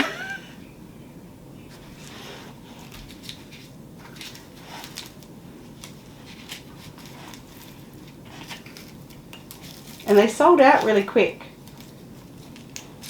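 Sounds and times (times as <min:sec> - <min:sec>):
small objects clicking and rustling: 0:02.8 - 0:13.0.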